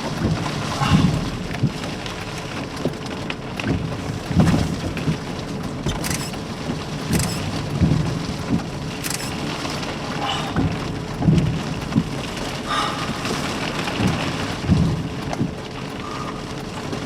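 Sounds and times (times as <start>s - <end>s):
rain on car windshield and roof: 0.0s - 17.0s
windshield wipers running: 3.7s - 12.4s.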